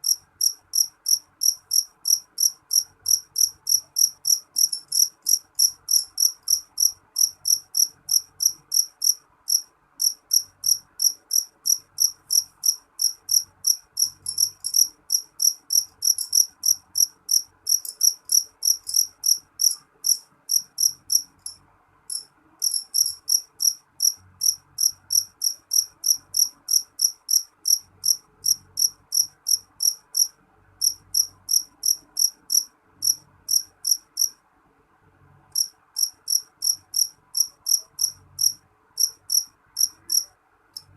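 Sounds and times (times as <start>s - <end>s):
cricket chirping: 0.0s - 34.4s, 35.6s - 40.9s.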